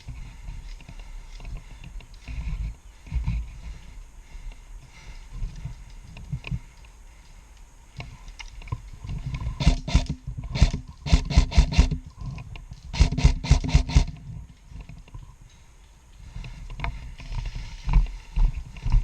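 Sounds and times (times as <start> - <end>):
airsoft rifle shots: 9.6 - 12.0, 12.9 - 14.2.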